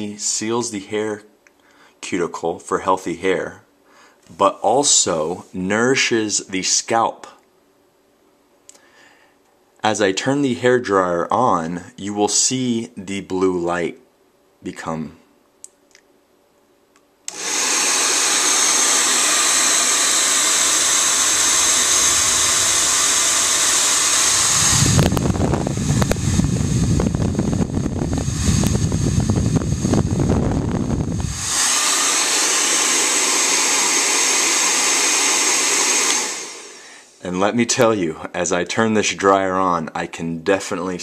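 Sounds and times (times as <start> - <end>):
hair dryer running: 17.3 - 36.9.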